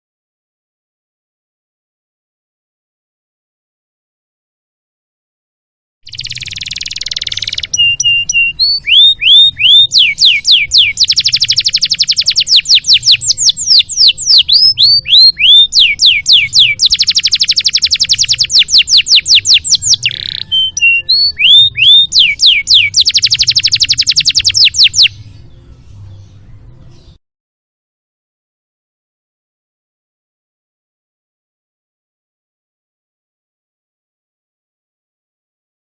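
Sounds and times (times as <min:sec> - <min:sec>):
canary singing trills and whistles: 0:06.1 - 0:27.2.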